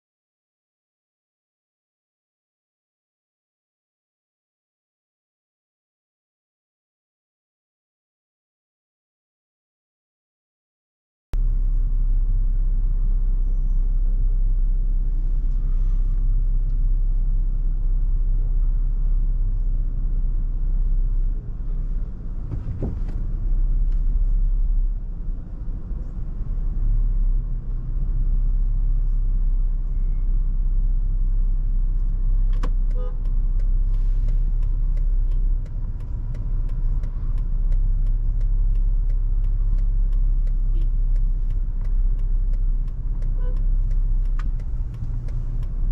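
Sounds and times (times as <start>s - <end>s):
road and wind rumble: 11.4s - 45.9s
light ticks: 32.0s - 45.9s.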